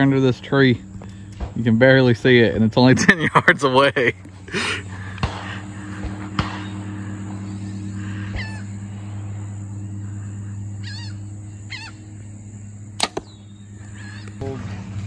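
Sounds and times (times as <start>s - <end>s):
steady low hum: 0.0s - 15.0s
bird chirping: 9.4s - 14.6s
sharp click: 13.0s - 13.3s.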